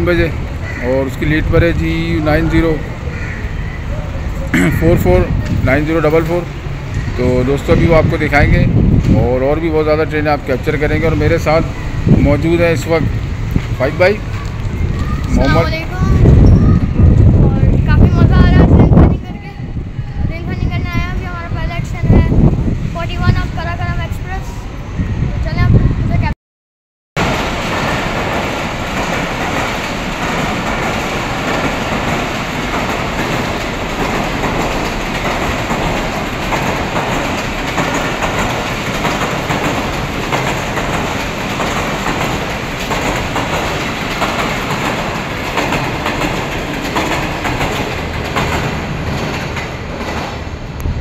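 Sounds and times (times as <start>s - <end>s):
wheels clattering over rail joints: 0.0s - 19.0s, 27.2s - 51.0s
train rushing past: 0.0s - 26.3s, 27.2s - 51.0s.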